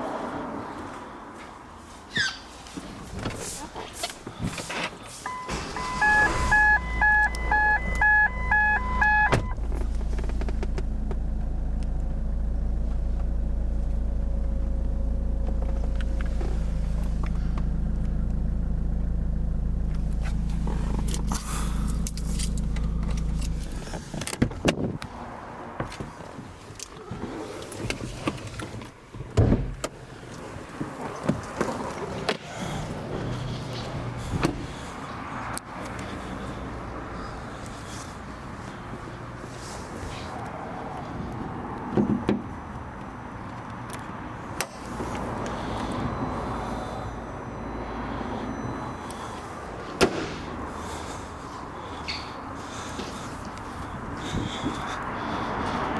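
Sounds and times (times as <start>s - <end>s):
car engine idling: 5.2s - 24.7s
two-tone warning chime beeping: 5.3s - 9.6s, 45.8s - 49.5s.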